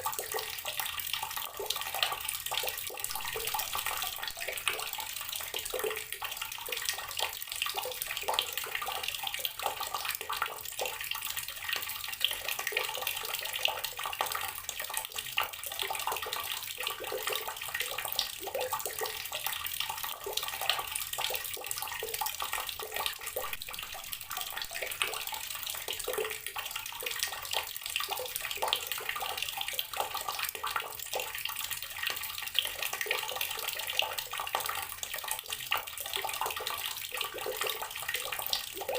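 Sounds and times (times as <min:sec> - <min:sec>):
tap water running and splashing: 0:00.0 - 0:38.9.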